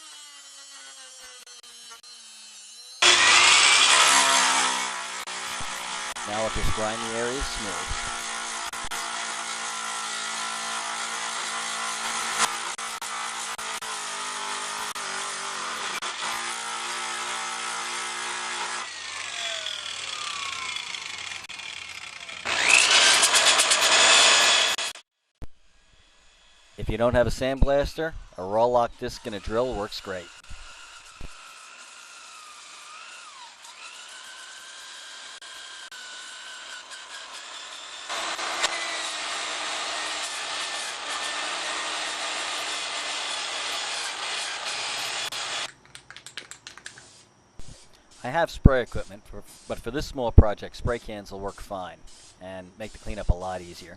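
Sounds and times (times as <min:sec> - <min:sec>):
power grinder whining: 0:00.0 - 0:25.0, 0:28.6 - 0:45.7
harsh grinding on metal: 0:00.8 - 0:25.0, 0:28.6 - 0:45.7.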